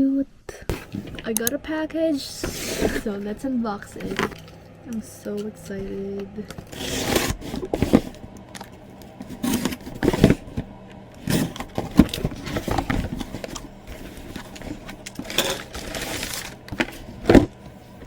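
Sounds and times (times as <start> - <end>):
packaging scraping and rustling: 0.7 - 1.3, 2.3 - 4.6, 6.5 - 18.0.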